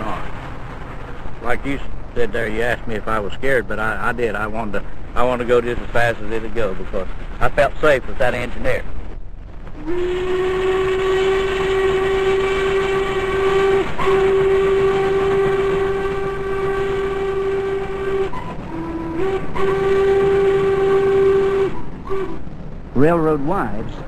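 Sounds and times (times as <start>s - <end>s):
steam locomotive whistle: 0.0s - 8.8s, 9.7s - 23.8s.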